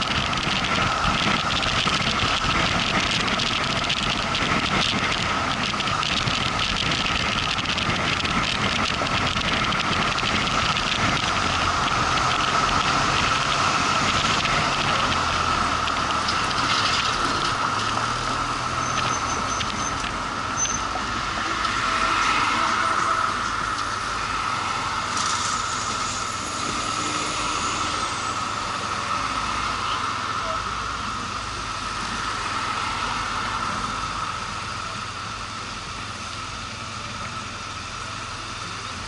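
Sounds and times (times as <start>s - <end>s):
motorcycle engine running: 0.0s - 20.4s
road and wind noise: 0.0s - 39.0s
steady whine: 0.0s - 39.0s.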